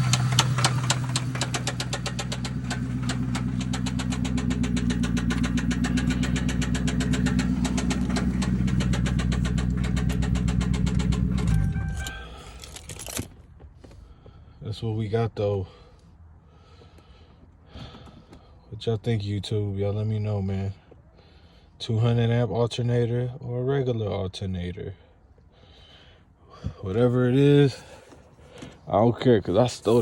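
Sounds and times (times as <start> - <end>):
engine winding down: 0.0 - 13.2
car engine idling with ticking: 0.0 - 14.8
faint brief tone: 11.4 - 12.4.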